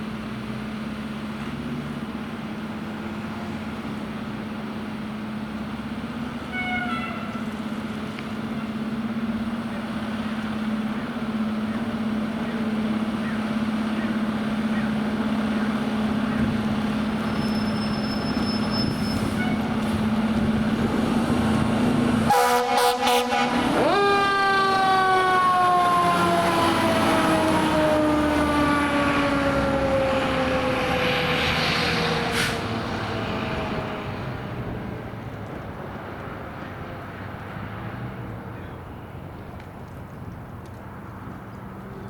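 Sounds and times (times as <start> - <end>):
fire engine low drone: 0.0 - 42.0
air horn blasts: 6.5 - 7.4, 17.9 - 19.8, 22.3 - 25.1
siren rising and falling: 21.0 - 34.5.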